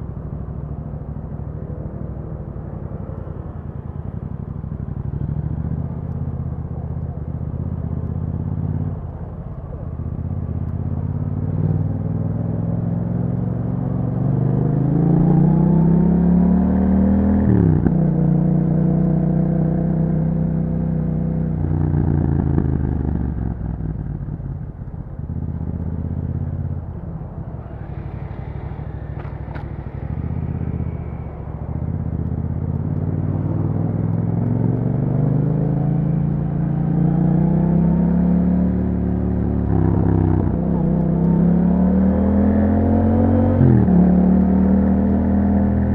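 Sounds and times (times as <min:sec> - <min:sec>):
motorcycle engine revving: 0:21.6 - 0:45.9.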